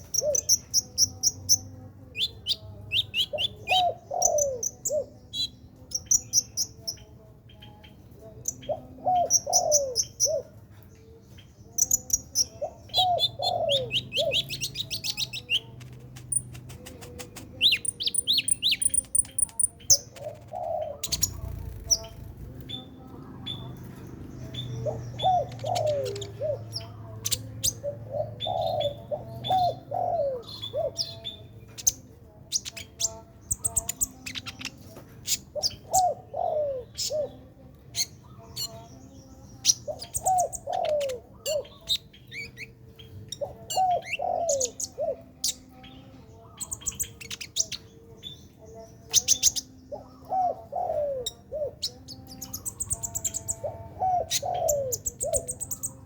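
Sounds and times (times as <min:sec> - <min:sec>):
dove cooing: 0:00.0 - 0:00.6, 0:03.3 - 0:05.2, 0:08.3 - 0:10.6, 0:12.5 - 0:19.3, 0:19.9 - 0:22.8, 0:23.5 - 0:31.3, 0:35.5 - 0:37.6, 0:39.9 - 0:42.0, 0:43.4 - 0:45.9, 0:49.3 - 0:56.0
songbird chirping and trilling: 0:00.0 - 0:56.0.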